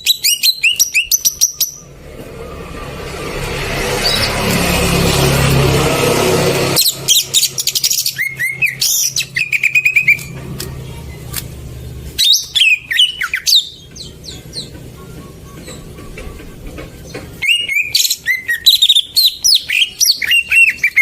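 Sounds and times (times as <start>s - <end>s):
bird song with clicks and whistles: 0.0s - 1.9s, 6.8s - 11.5s, 12.1s - 21.0s
loud rushing noise: 1.8s - 8.2s.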